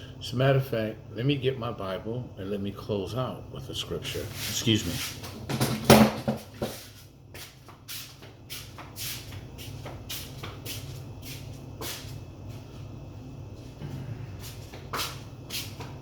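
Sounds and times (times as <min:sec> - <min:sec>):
steady low hum: 0:00.0 - 0:16.0
knocks and clicks of handling things: 0:05.2 - 0:06.8.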